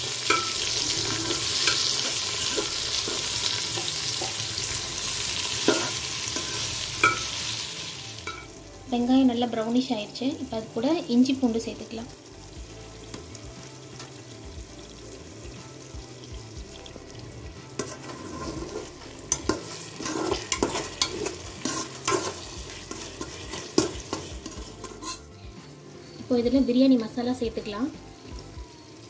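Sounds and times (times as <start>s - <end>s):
onions sizzling in a pot: 0.0s - 29.0s
spoon scraping a pot: 0.2s - 4.4s, 17.8s - 25.3s.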